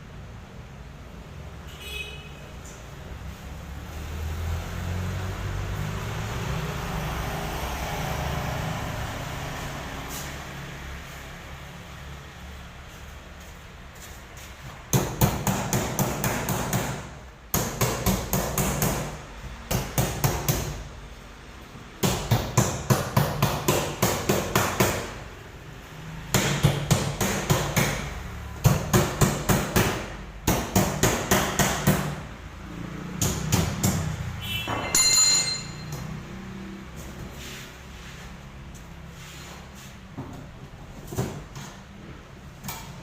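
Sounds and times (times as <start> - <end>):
engine hum: 3.2 - 14.2
hammer striking metal: 33.2 - 36.2
metallic ringing tone: 34.8 - 36.2.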